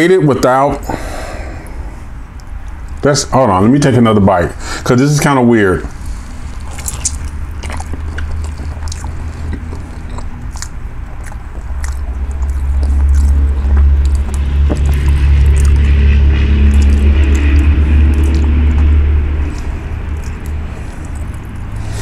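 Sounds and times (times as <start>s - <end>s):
low steady rumble: 0.0s - 22.0s
chewing crispy fried fish: 5.9s - 22.0s.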